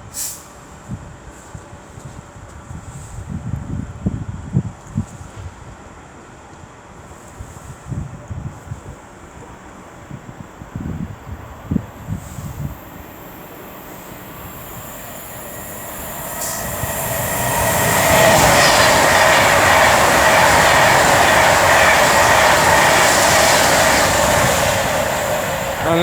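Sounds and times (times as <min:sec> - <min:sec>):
train passing at speed: 0:05.2 - 0:26.0.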